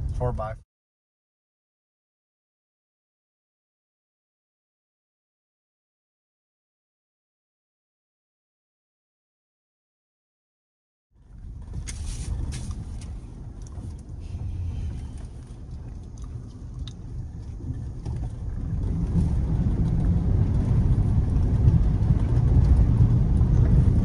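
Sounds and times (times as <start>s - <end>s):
vehicle engine and tyres rumbling: 11.2s - 24.0s.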